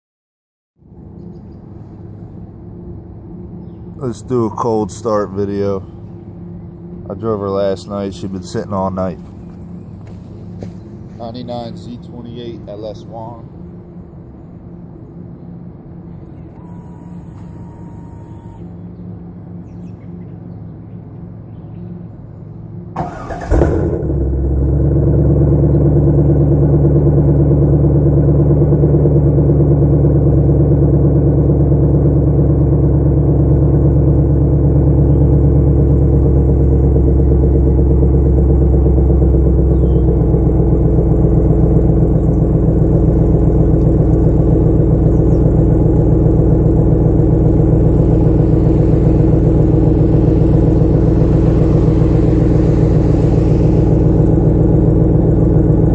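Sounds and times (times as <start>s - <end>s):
engine idling: 0.8s - 20.4s, 21.6s - 55.9s
engine flaring as it starts: 22.9s - 55.9s
engine cranking: 23.0s - 24.3s.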